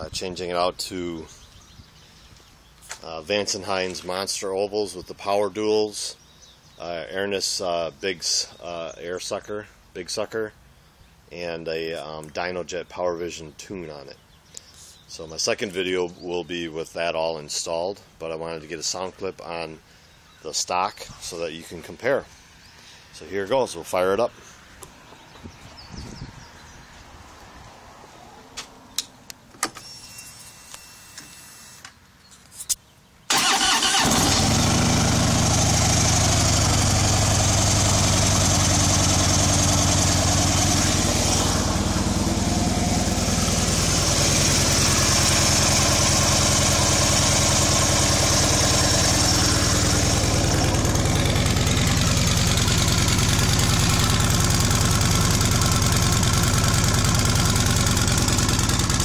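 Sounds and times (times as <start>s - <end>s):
motorcycle engine starting and idling: 33.3s - 59.0s.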